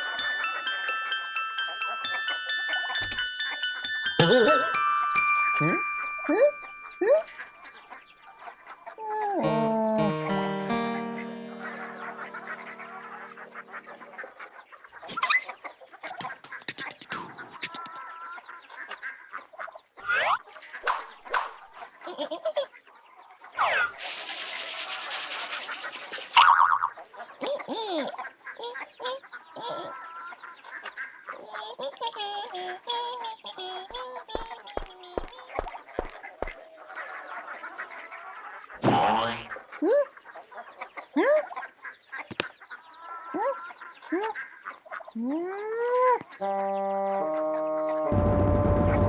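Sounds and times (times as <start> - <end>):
ducks quacking: 10.3 - 15.1, 27.2 - 45.2
fowl clucking: 24.0 - 38.5
fowl honking calls: 27.3 - 35.6.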